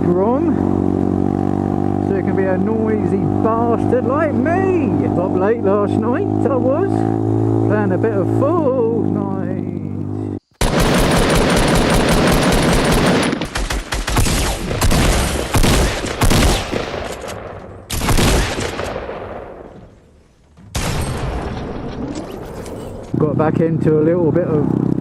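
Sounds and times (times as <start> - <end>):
video game gunfire: 10.6 - 17.2, 17.9 - 19.1
blast: 20.7 - 23.0.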